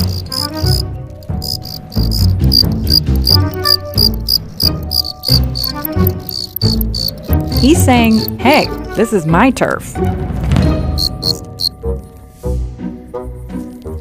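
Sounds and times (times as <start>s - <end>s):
cricket chirping rapidly: 0.0s - 9.0s, 10.9s - 11.8s.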